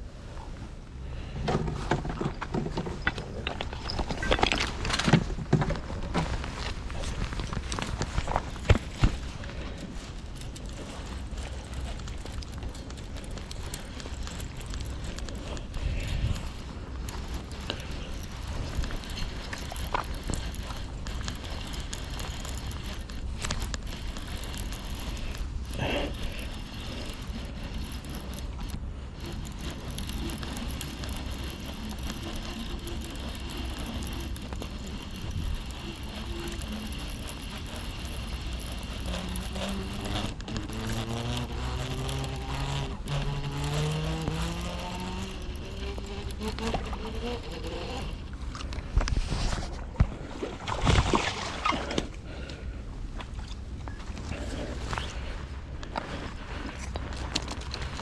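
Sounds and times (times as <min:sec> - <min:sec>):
outdoor rumble: 0:00.0 - 0:58.0
engine speeding up: 0:39.1 - 0:48.3.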